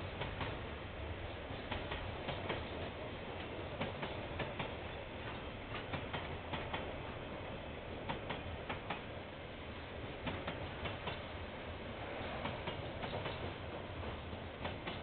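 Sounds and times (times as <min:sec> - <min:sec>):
train rumble: 0:00.0 - 0:15.0
wheels clicking over rail joints: 0:01.5 - 0:07.0, 0:08.0 - 0:09.1, 0:10.2 - 0:11.4, 0:12.2 - 0:15.0.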